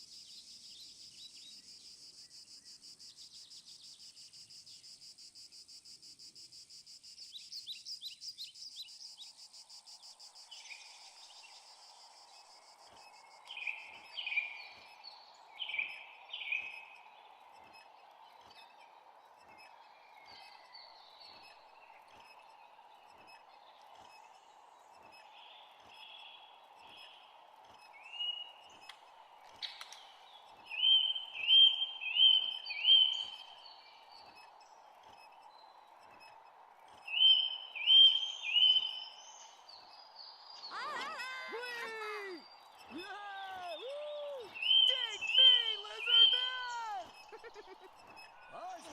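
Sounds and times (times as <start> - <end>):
rapid cricket chirping: 0.0 - 48.9
steady background noise: 0.0 - 48.9
faint regular ticks: 21.3 - 30.7, 33.4 - 37.1
falling bird calls: 40.4 - 48.9.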